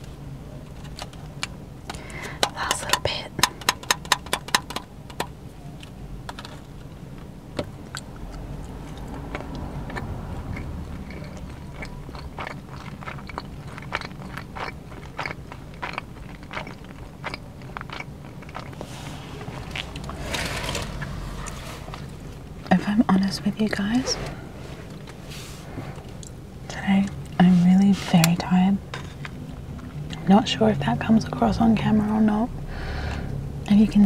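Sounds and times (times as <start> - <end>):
chewing food: 0.6 - 30.4
wet mouth clicks: 7.9 - 20.2
low hum: 16.1 - 34.0.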